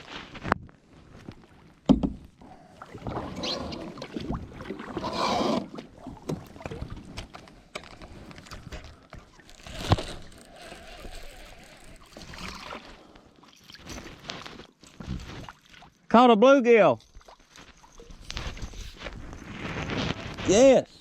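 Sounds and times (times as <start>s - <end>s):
rustling water and movement: 0.0s - 21.0s
knocks on kayak hull: 1.9s - 2.2s.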